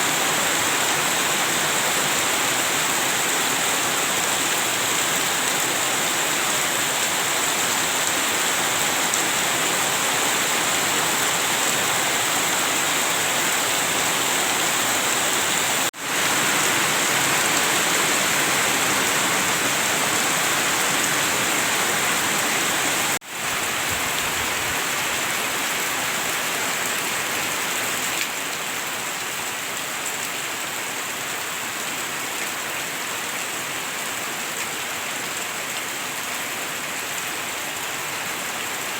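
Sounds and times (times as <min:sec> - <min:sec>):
heavy rain pouring: 0:00.0 - 0:29.2.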